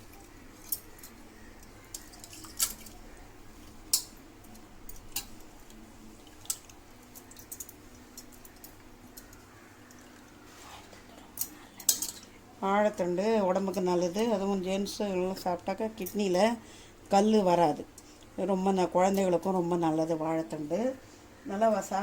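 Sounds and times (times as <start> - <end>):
wet squishing and dripping: 0.0 - 10.4.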